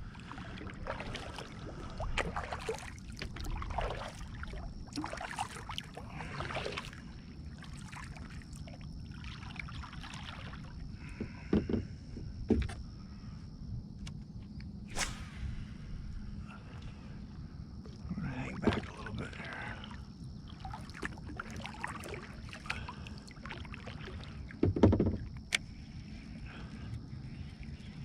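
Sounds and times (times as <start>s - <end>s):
paddle strokes splashing water: 0.0s - 11.2s, 18.6s - 26.2s
paddle knocking against hull: 11.1s - 12.8s, 24.5s - 25.4s.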